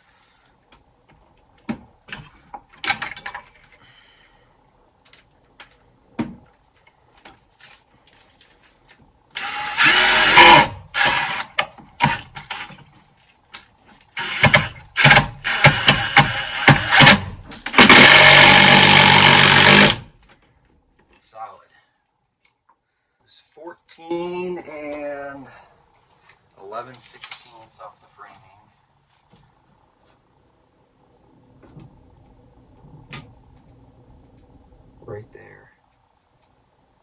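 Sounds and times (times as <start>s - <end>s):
power driver driving screws: 9.4s - 12.8s, 14.2s - 20.1s.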